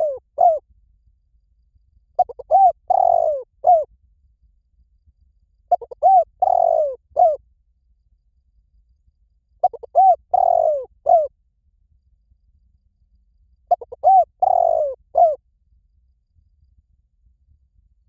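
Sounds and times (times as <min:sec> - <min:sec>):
dove cooing: 0:00.0 - 0:00.6, 0:02.2 - 0:03.9, 0:05.7 - 0:07.4, 0:09.6 - 0:11.3, 0:13.7 - 0:15.4.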